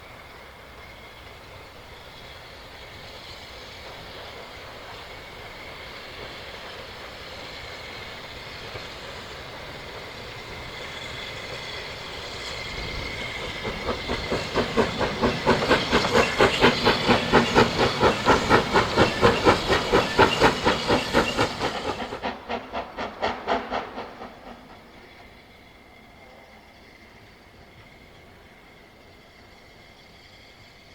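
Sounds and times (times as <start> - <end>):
steam train hissing: 0.0 - 30.9
steam train rhythmic beats: 11.4 - 25.2.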